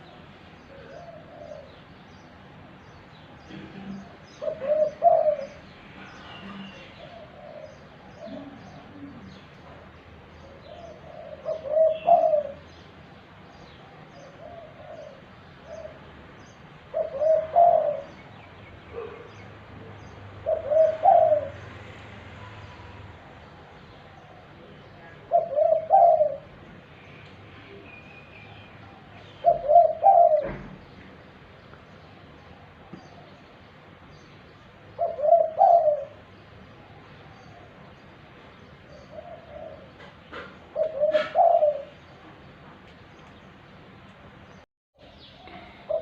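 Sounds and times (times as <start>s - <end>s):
dove cooing: 0.7s - 1.9s, 3.5s - 9.8s, 10.4s - 12.8s, 13.9s - 16.1s, 16.8s - 18.3s, 18.9s - 21.9s, 24.1s - 26.7s, 28.9s - 30.8s, 35.0s - 36.3s, 38.9s - 42.2s, 45.4s - 46.0s.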